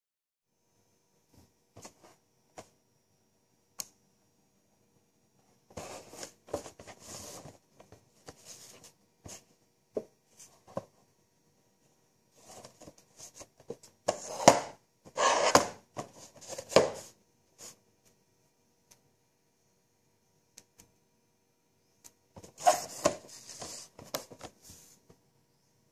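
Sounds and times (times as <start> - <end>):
packaging rustling and scraping: 5.7 - 9.5, 12.4 - 17.1, 22.4 - 24.7.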